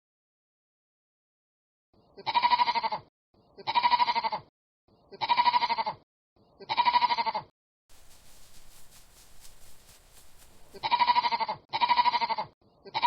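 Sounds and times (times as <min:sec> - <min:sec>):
sheep bleating: 0:02.2 - 0:03.0, 0:03.6 - 0:04.5, 0:05.1 - 0:06.0, 0:06.6 - 0:07.5, 0:10.4 - 0:13.0
faint rustling: 0:07.9 - 0:10.8.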